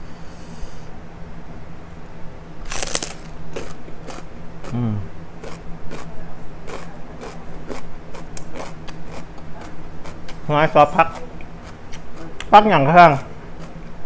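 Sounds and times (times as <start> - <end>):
crunchy chewing of cabbage: 2.6 - 14.0
person humming: 4.6 - 5.1.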